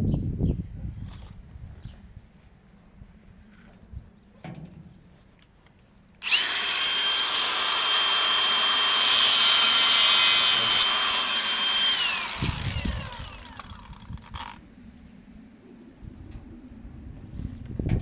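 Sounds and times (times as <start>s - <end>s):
power tool whining: 6.2s - 14.6s.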